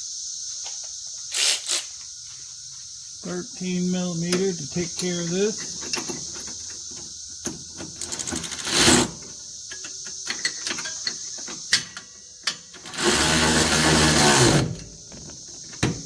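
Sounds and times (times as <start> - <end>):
ratchet clicking: 7.9 - 14.7.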